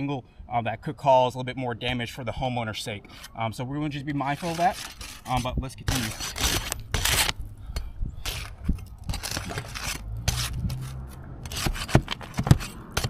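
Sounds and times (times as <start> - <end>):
scraping on roof shingles: 4.3 - 7.3, 8.2 - 10.8, 11.5 - 13.0.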